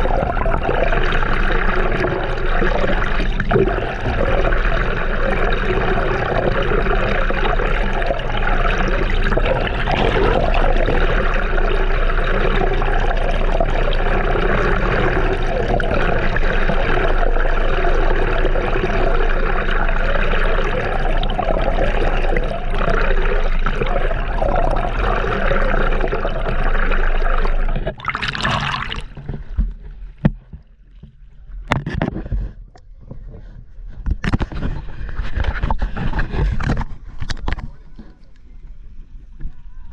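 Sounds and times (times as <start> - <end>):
seawater rushing and gurgling: 0.0 - 30.9.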